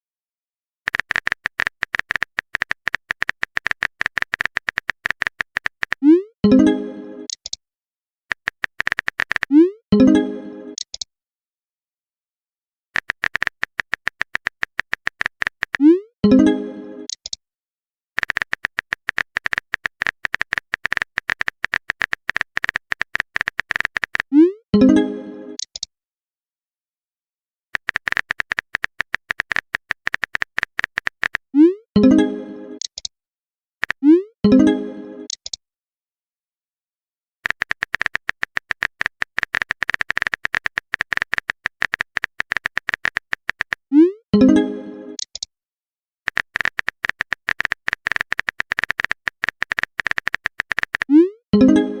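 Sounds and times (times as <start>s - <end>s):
smartphone keyboard tapping: 0.9s - 6.0s, 8.3s - 9.5s, 13.0s - 15.8s, 18.2s - 24.3s, 27.8s - 31.5s, 33.8s - 34.0s, 37.4s - 43.8s, 46.3s - 51.1s.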